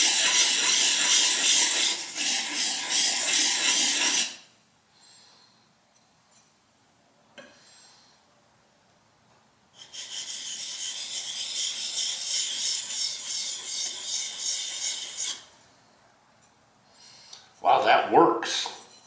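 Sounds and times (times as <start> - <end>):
blade rubbing on sharpening stone: 0.0 - 4.4, 9.8 - 15.5, 18.8 - 19.0.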